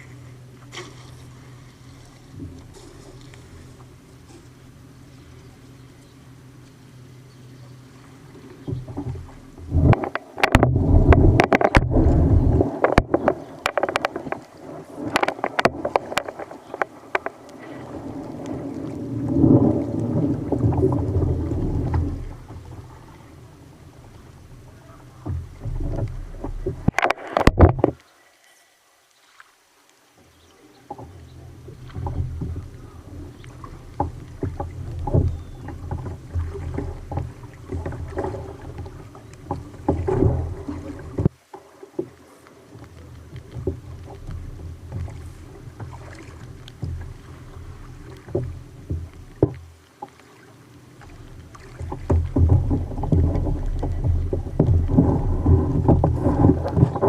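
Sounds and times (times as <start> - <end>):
water sloshing against kayak: 0.0 - 57.0
knocks from hull and gear: 8.6 - 14.4, 15.1 - 17.4, 25.2 - 28.0, 51.6 - 57.0
low rumble: 8.8 - 13.6, 16.9 - 27.9, 52.0 - 57.0.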